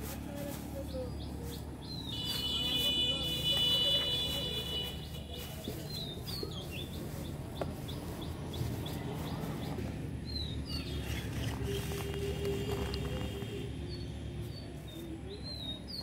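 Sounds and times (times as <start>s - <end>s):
small bird chirping: 4.9s - 16.0s.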